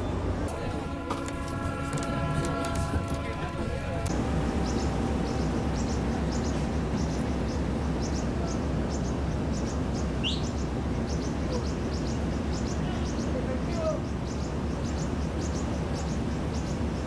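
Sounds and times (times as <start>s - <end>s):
train rumbling slowly: 0.0s - 17.0s
small birds chirping: 4.5s - 17.0s.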